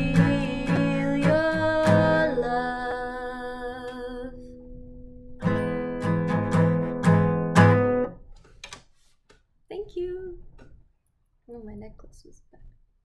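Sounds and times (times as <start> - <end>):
acoustic guitar chords: 0.0 - 8.2.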